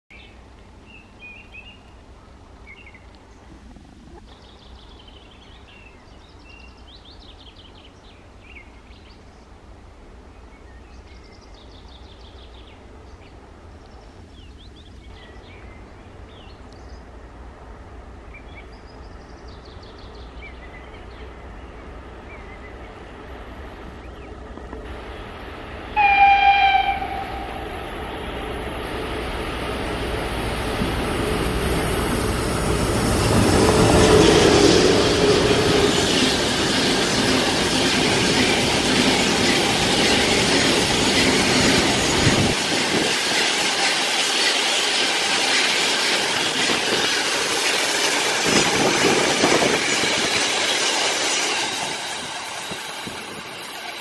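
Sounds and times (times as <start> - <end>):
train rumble: 2.0 - 54.0
birds chirping: 18.2 - 42.4
locomotive horn blast: 25.9 - 28.0.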